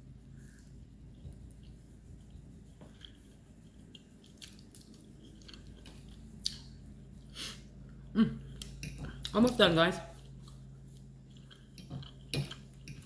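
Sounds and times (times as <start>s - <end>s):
person chewing food: 0.3s - 9.4s, 10.1s - 13.0s.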